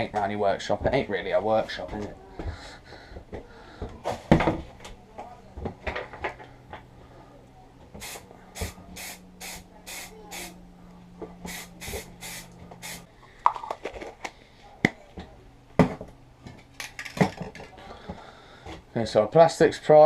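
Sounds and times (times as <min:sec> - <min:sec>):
spray can hissing bursts: 0:08.0 - 0:10.6, 0:11.4 - 0:13.1.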